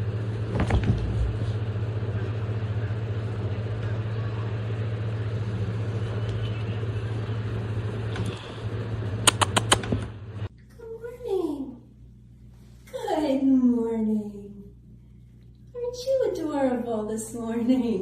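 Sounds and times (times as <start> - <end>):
low mechanical hum: 0.0 - 18.0
sharp clicks: 9.2 - 10.0.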